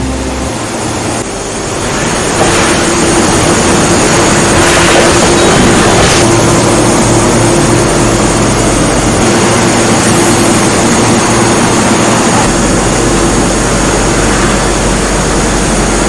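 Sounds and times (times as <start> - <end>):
constant machine hum: 0.0 - 16.0
laser cutter hiss: 0.0 - 16.0.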